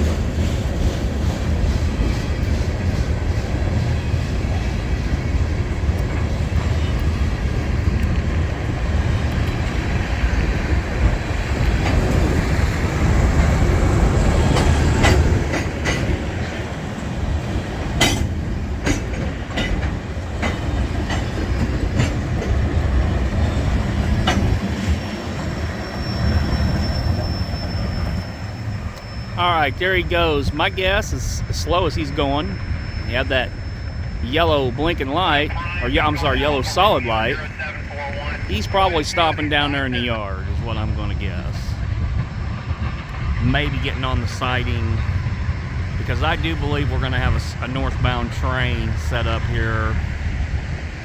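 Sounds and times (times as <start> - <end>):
wheels clicking over rail joints: 0.0 - 25.8
freight train cars rumbling: 0.0 - 51.0
high wheel squeal: 9.4 - 41.8.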